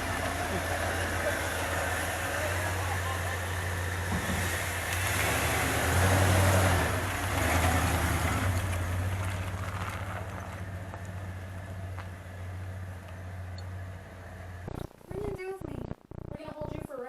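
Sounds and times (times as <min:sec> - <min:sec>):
road noise: 0:00.0 - 0:16.5
vehicle engine running: 0:00.0 - 0:17.0.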